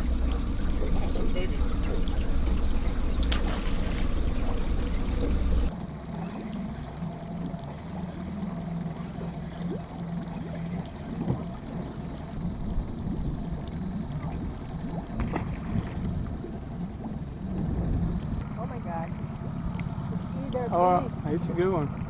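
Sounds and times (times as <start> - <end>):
boat motor humming: 0.0 - 22.0
water splashing against hull: 0.0 - 22.0.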